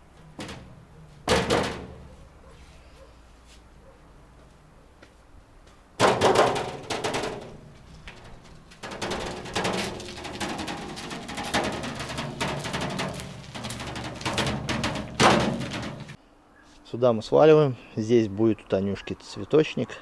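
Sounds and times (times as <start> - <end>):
hard knocking and clattering: 0.0 - 2.5, 6.0 - 16.2.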